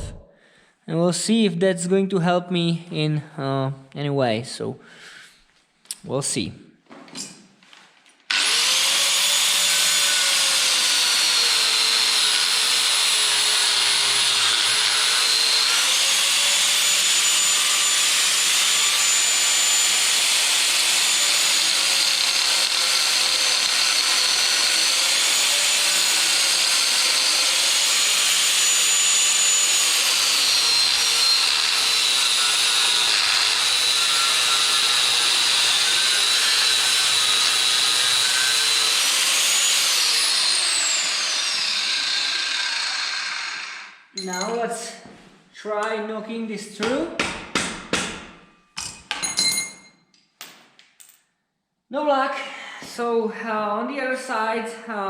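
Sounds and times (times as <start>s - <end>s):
disc cutter cutting steel: 8.3s - 43.9s.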